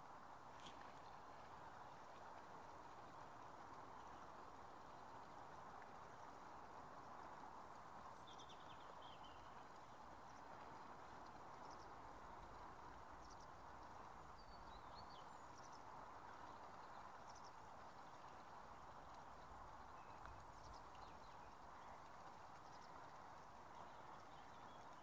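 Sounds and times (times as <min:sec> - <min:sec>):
faint background hiss: 0:00.0 - 0:25.0
small birds chirping: 0:08.0 - 0:10.6, 0:13.1 - 0:25.0.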